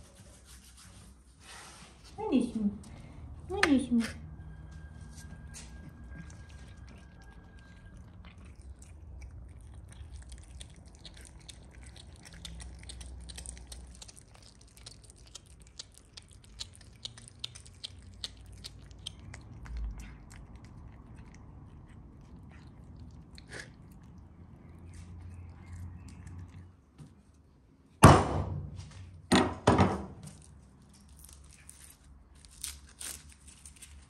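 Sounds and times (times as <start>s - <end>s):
person chewing crunchy food: 5.6s - 26.9s.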